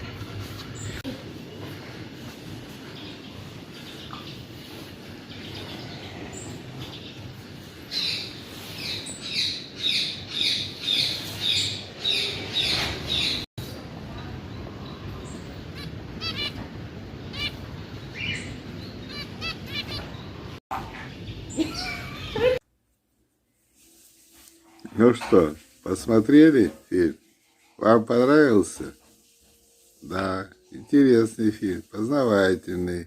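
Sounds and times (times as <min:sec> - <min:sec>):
caged birds calling: 0:00.0 - 0:22.6
bird chirps and trills: 0:02.7 - 0:13.5, 0:14.1 - 0:22.4.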